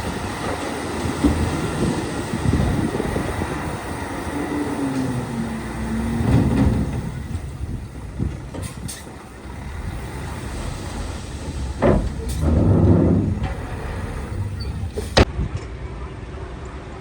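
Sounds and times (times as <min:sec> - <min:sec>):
diesel machinery engines under load: 0:00.0 - 0:15.3
machinery knocks: 0:04.9 - 0:15.3.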